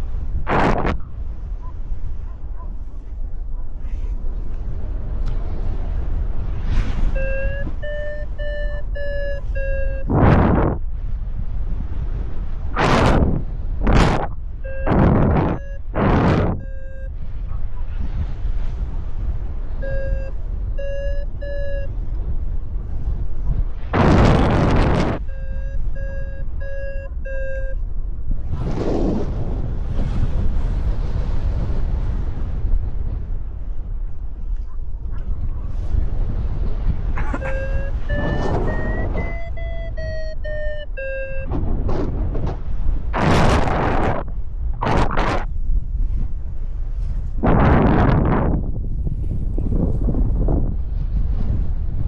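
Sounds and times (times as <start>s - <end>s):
wind buffeting microphone: 0.0s - 52.0s
variometer short beeps: 7.0s - 10.8s, 14.0s - 17.3s, 19.8s - 22.0s, 24.0s - 27.8s, 37.3s - 41.6s.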